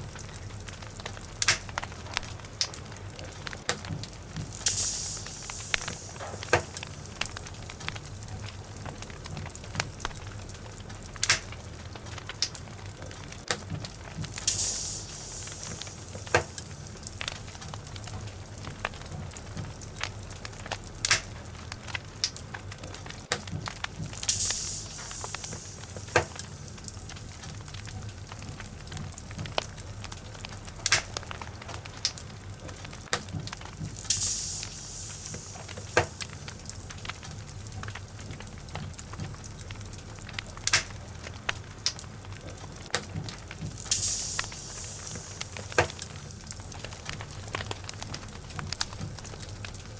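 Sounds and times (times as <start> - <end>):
fire hissing: 0.0 - 49.9
logs crackling and popping: 0.0 - 49.9.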